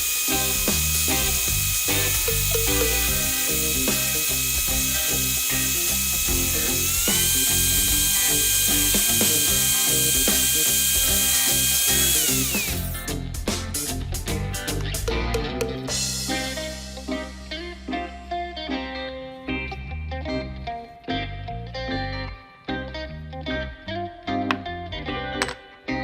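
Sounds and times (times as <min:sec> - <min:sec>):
electric drill motor whining: 0:00.0 - 0:13.0
background music: 0:00.0 - 0:26.0.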